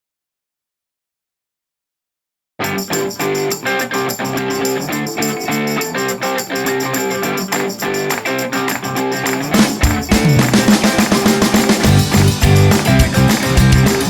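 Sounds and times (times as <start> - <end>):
plucked guitar music: 2.6 - 14.0
drum beat: 6.9 - 14.0.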